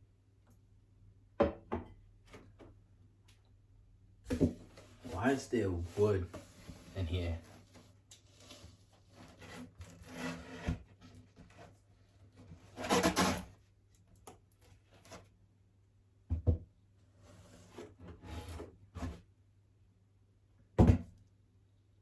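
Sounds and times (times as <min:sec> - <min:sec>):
scrape: 0:04.6 - 0:13.5, 0:17.1 - 0:19.3.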